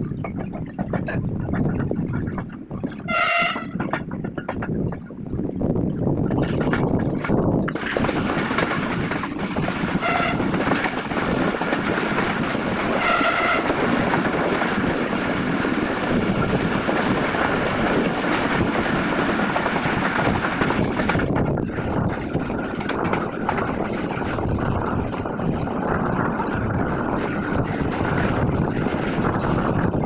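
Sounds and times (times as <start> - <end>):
train rumble and rail clatter: 0.0 - 30.0
train horn: 3.1 - 3.8, 10.0 - 10.5, 13.0 - 13.8.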